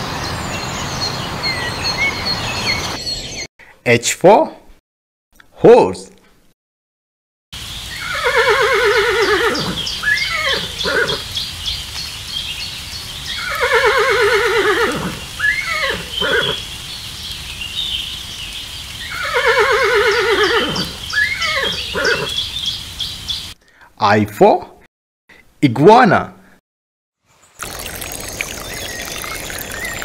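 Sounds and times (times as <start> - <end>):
horse neighing: 8.0 - 11.2, 13.4 - 16.6, 19.1 - 22.4.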